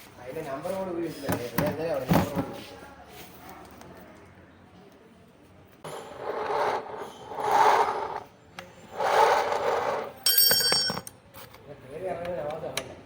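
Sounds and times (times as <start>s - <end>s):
hand tools scraping metal: 5.9s - 8.3s, 8.9s - 10.9s
metallic ring: 10.2s - 11.1s.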